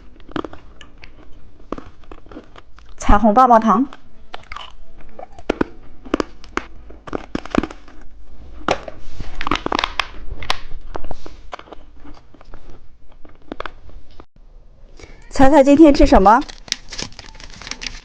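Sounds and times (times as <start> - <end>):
lollipop crunching: 0.0 - 3.0, 3.9 - 13.8
plastic wrapper crinkling: 5.5 - 8.1, 16.4 - 18.0.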